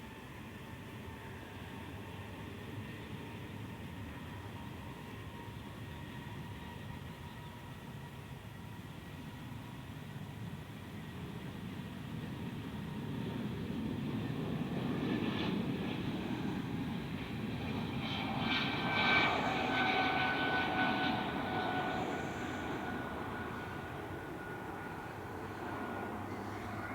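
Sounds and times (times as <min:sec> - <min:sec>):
high jet engine whine: 0:00.0 - 0:26.9
jet engines rumbling: 0:12.9 - 0:26.9.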